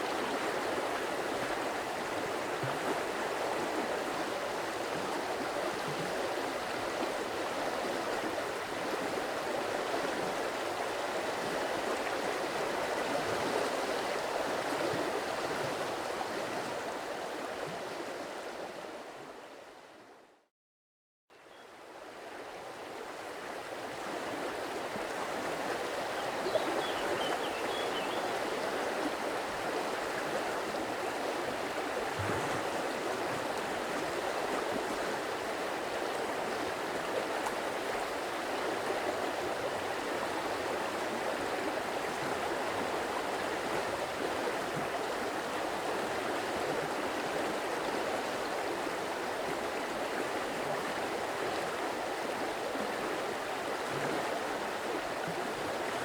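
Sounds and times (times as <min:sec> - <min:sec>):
stream rushing and gurgling: 0:22.1 - 0:56.0.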